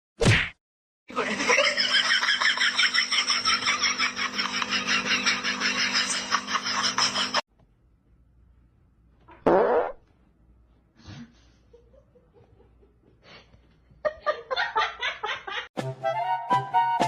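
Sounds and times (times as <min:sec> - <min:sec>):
fart-like buzzing blast: 0:09.3 - 0:10.1.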